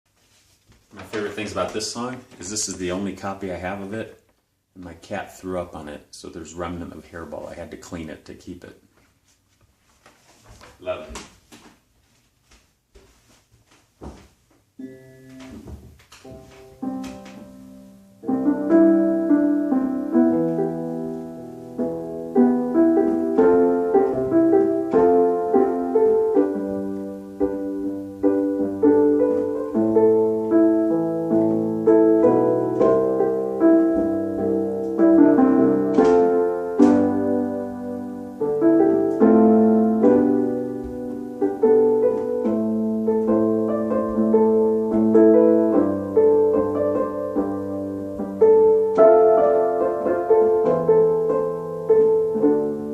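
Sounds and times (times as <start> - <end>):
solo piano playing chords: 14.8 - 52.9.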